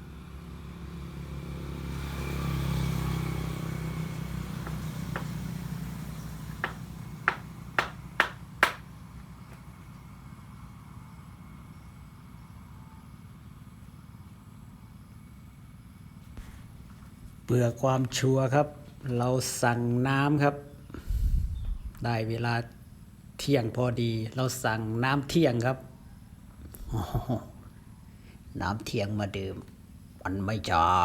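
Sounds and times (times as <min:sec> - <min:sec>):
vehicle passing: 0:00.0 - 0:08.9
knocks on wooden bed frame: 0:04.6 - 0:05.5, 0:06.6 - 0:08.8.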